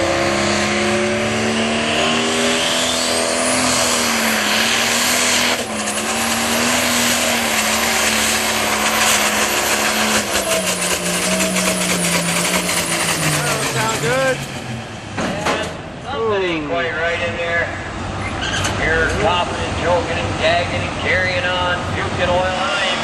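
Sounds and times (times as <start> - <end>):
diesel engine at high revs: 0.0 - 16.0, 18.8 - 23.0
announcer talking: 13.2 - 14.4, 15.4 - 17.9, 18.8 - 23.0.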